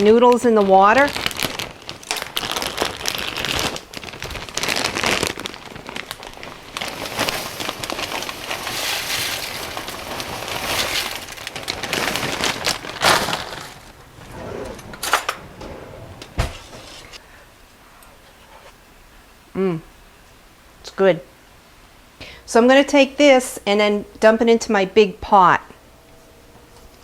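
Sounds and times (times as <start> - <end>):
plastic bag crinkling: 0.0 - 15.5
dry noodles rattling into pot: 0.9 - 14.0.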